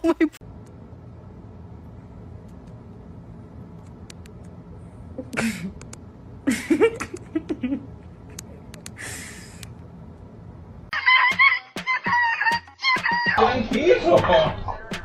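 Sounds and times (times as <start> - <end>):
low hum: 0.1 - 10.9.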